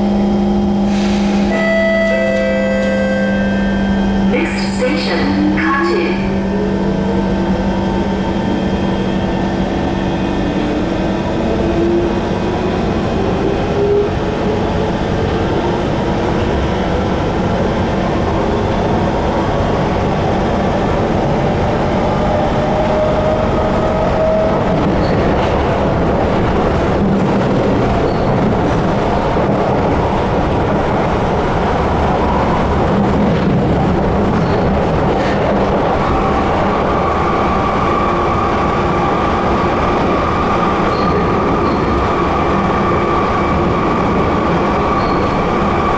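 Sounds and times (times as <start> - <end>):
train wheels on rail: 0.0 - 5.5, 6.5 - 45.9
train motor whine: 0.1 - 5.0.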